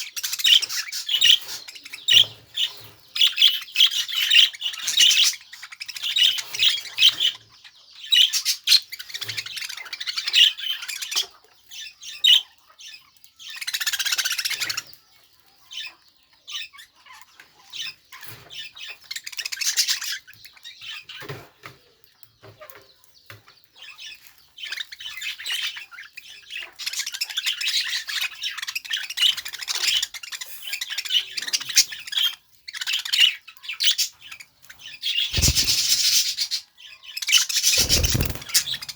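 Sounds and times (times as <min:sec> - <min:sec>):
budgerigar chattering: 0:35.1 - 0:36.6.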